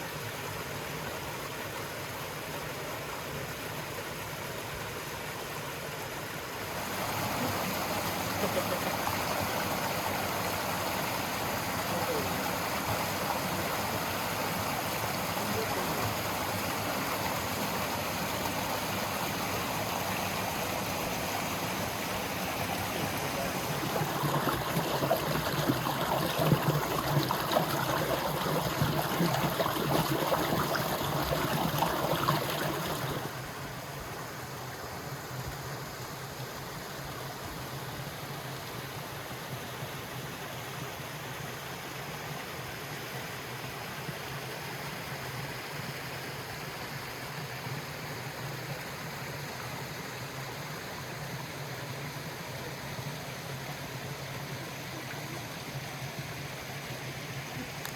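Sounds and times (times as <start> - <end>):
river water rushing: 3.1 - 35.3.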